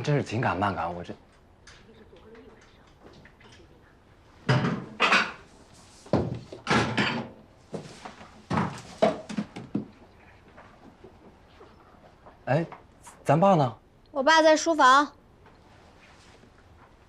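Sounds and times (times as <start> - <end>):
objects knocking and rustling: 4.4 - 12.9.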